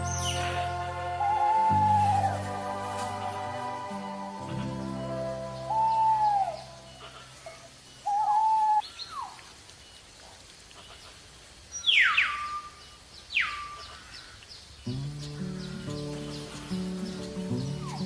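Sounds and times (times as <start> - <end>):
bird whistling: 0.0 - 2.9, 4.4 - 8.8, 15.2 - 18.0.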